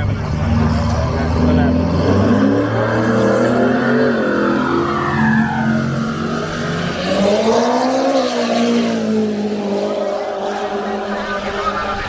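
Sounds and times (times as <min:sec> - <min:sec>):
racing car engine revving: 0:00.0 - 0:12.0.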